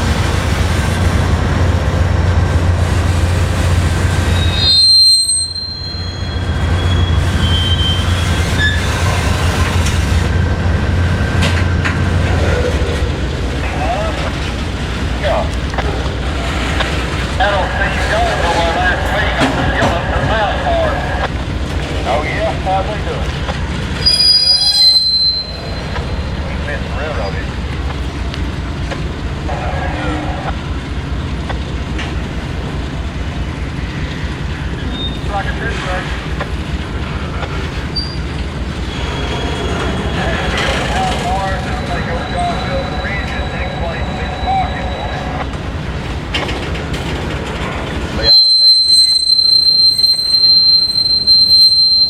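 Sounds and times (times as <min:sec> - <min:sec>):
train rolling by: 0:00.0 - 0:52.0
faint wheel squeals: 0:04.2 - 0:10.0, 0:24.0 - 0:27.7, 0:34.0 - 0:36.2, 0:37.5 - 0:45.5, 0:48.1 - 0:52.0.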